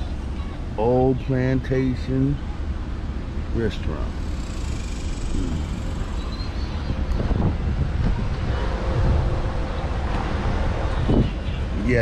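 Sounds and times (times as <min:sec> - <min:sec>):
faint voices: 0:03.6 - 0:07.1
wind buffeting microphone: 0:05.0 - 0:12.0.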